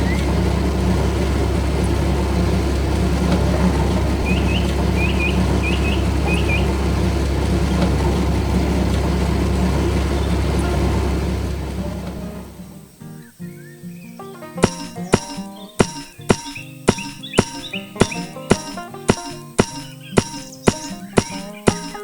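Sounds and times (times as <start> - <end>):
heavy vehicle engine rumble: 0.0 - 13.0
bird chirps: 4.2 - 6.8, 13.2 - 22.0.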